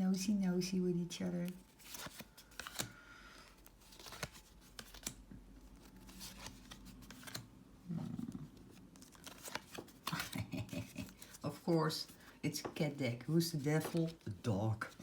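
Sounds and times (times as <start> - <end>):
cards clicking and rustling: 1.4 - 7.6, 8.6 - 12.8, 13.6 - 14.3.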